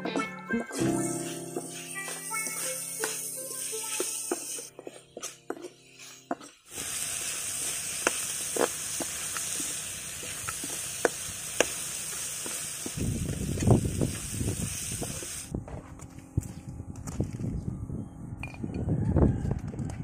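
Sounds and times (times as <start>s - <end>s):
background music: 0.0s - 6.4s
meat sizzling in a wok: 1.0s - 4.7s, 6.0s - 15.5s.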